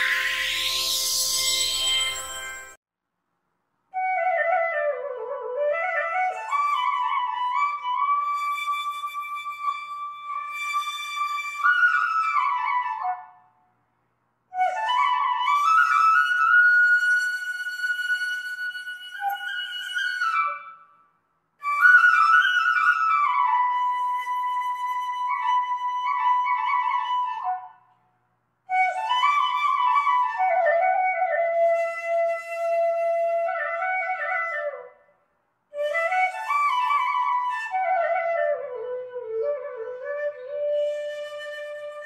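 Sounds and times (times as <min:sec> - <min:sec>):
flute-like woodwind melody: 0:00.0 - 0:02.8, 0:04.0 - 0:13.4, 0:14.6 - 0:20.9, 0:21.6 - 0:27.8, 0:28.7 - 0:35.0, 0:35.8 - 0:42.0.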